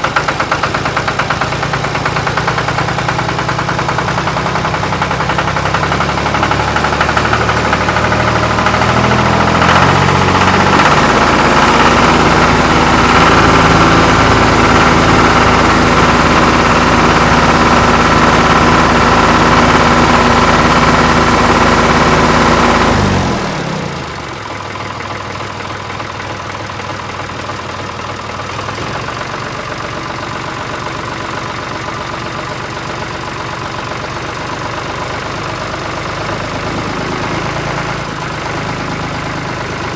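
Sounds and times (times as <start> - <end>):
tractor engine running hard: 0.0 - 39.9.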